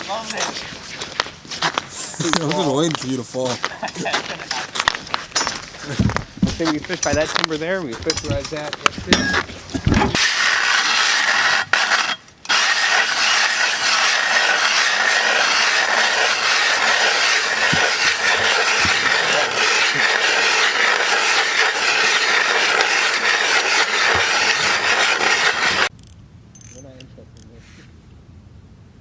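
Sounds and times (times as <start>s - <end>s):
ice auger grinding through ice: 10.0s - 25.9s.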